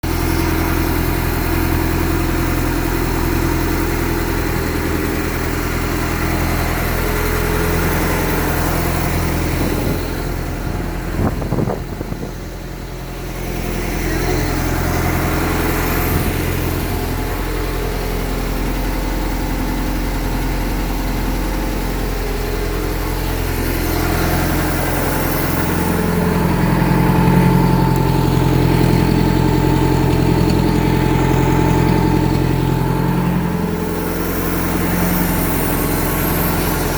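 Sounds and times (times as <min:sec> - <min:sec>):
boat engine running: 0:00.0 - 0:36.9
uneven engine knocks: 0:23.6 - 0:34.4.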